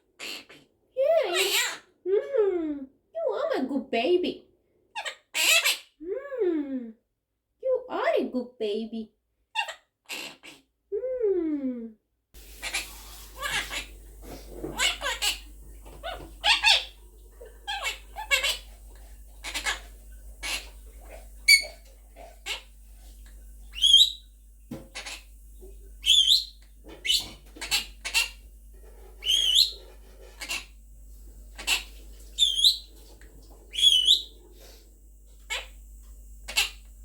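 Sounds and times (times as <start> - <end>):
parrot chattering: 1.3 - 1.8, 5.0 - 5.9, 12.4 - 22.8, 23.7 - 24.2, 24.9 - 25.4, 26.0 - 30.8, 31.5 - 33.1, 33.7 - 34.4, 35.4 - 35.8, 36.4 - 37.0.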